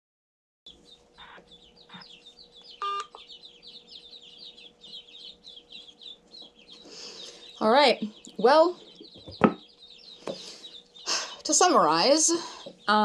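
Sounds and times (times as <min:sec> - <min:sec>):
ducklings peeping: 0:00.7 - 0:13.0
short beep: 0:02.8 - 0:03.2.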